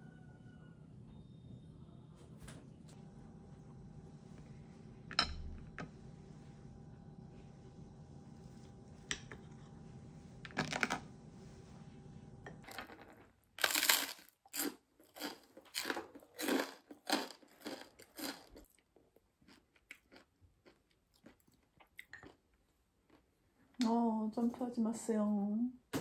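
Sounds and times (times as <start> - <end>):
low room hum: 0.0 - 26.0
crunchy chewing of toast: 13.6 - 22.4.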